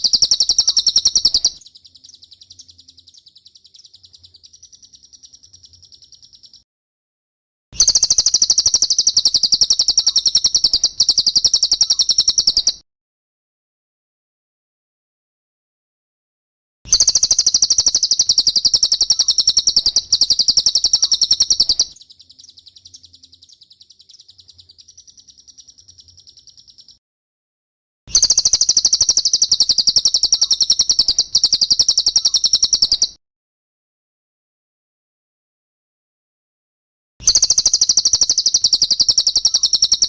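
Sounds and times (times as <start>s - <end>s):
bird trilling: 0.0s - 6.6s, 7.8s - 12.8s, 16.9s - 27.0s, 28.1s - 33.2s, 37.2s - 40.0s
bird twittering: 0.0s - 6.6s, 7.8s - 12.8s, 16.9s - 27.0s, 28.1s - 33.2s, 37.2s - 40.0s.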